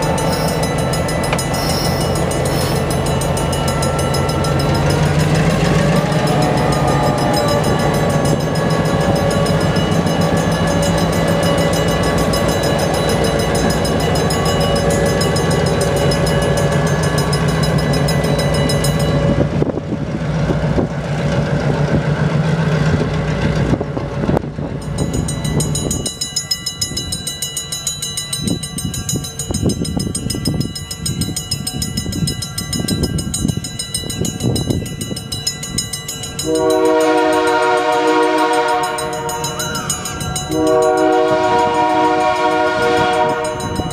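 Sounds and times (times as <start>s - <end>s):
train wheels clicking over rail joints: 0.0s - 37.7s
diesel locomotive engine running: 0.0s - 43.9s
multi-chime air horn: 36.4s - 43.9s.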